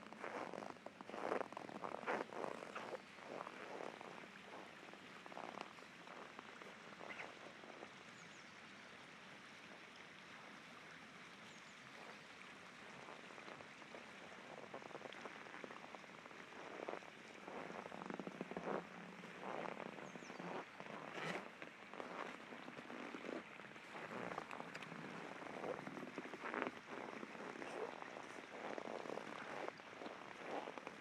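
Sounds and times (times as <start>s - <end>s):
footsteps crunching on frozen snow: 0.2s - 4.7s, 16.6s - 29.7s.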